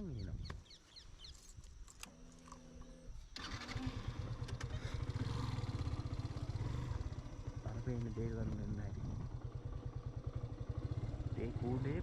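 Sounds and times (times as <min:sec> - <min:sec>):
motorcycle engine running: 0:03.4 - 0:12.0.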